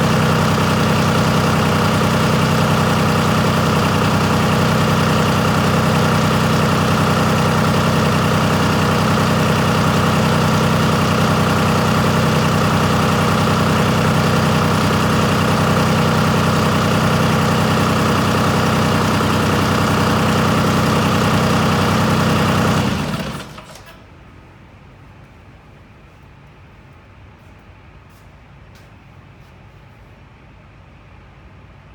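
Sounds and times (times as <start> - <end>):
diesel engine idling: 0.0 - 23.9.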